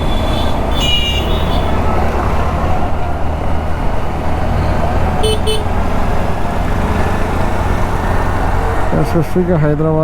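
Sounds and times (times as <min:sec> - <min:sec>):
vehicle horn beeps: 0:00.0 - 0:01.8, 0:05.2 - 0:05.7
scooter engine and road rumble: 0:00.0 - 0:10.0.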